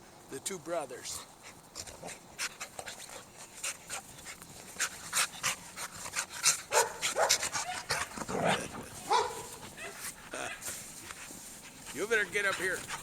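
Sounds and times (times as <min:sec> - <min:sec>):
dogs panting: 0:00.9 - 0:13.0
dog sound: 0:01.8 - 0:13.0.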